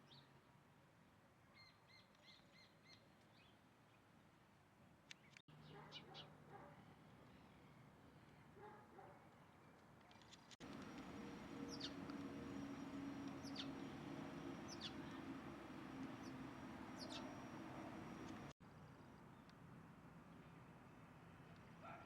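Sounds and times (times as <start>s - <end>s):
bird chirping: 10.6s - 18.5s
faint low hum: 10.6s - 18.5s.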